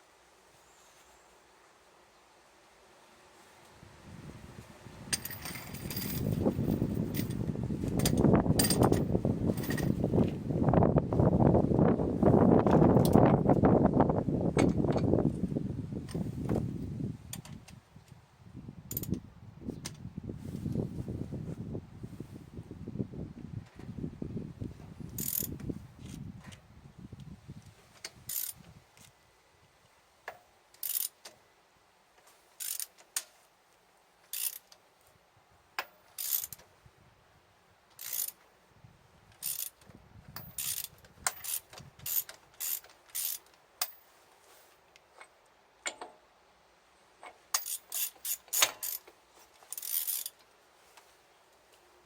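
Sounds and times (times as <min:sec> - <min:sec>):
hand tool ratcheting clicks: 0:05.1 - 0:10.0, 0:18.9 - 0:19.2, 0:25.2 - 0:25.5, 0:28.3 - 0:28.6, 0:30.8 - 0:31.2, 0:32.6 - 0:33.0, 0:34.3 - 0:34.8, 0:35.8 - 0:36.6, 0:38.0 - 0:38.4, 0:39.4 - 0:39.8, 0:40.4 - 0:44.1, 0:47.5 - 0:50.4.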